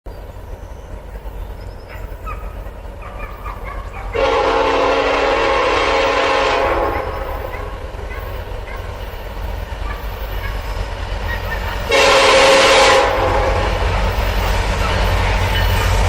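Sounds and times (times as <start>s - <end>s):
low train rumble: 0.1s - 16.0s
locomotive horn blast: 4.0s - 8.5s, 11.4s - 14.2s.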